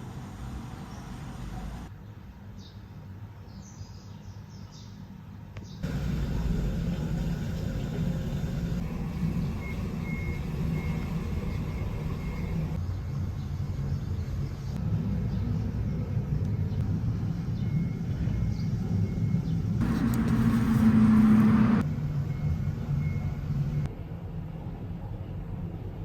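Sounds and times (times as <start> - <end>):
car engine and road noise: 0.0 - 1.9, 5.8 - 24.1.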